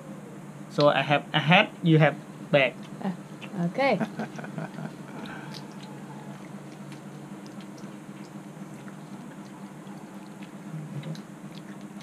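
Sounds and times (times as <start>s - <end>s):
steady low hum: 0.0s - 12.0s
small clicks and crackles of chewing: 5.1s - 12.0s.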